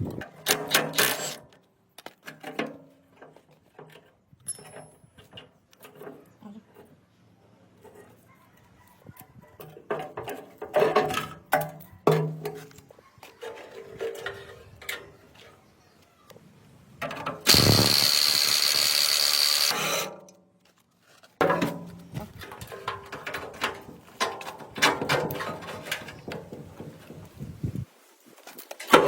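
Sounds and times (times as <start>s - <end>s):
power tool whining: 17.4s - 20.2s.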